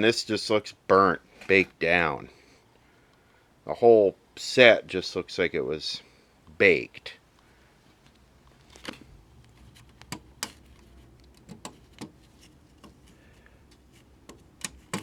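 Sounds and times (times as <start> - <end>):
faint low room hum: 0.0 - 15.0
clicks and knocks handling television: 8.1 - 15.0.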